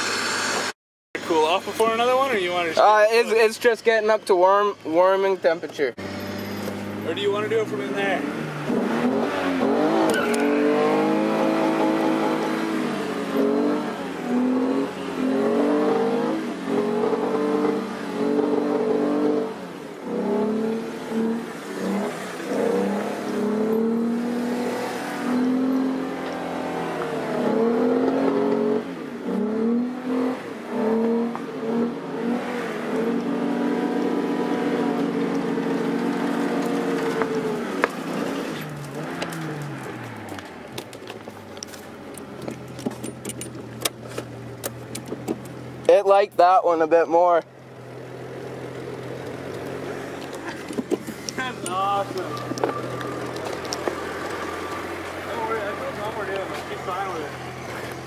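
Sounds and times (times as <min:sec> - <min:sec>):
car engine revving hard: 0:06.0 - 0:40.4, 0:47.7 - 0:58.0.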